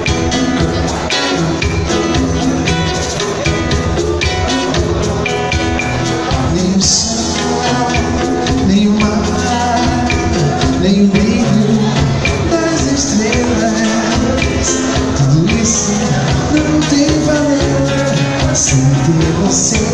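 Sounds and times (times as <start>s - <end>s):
band playing pop song: 0.0s - 19.9s.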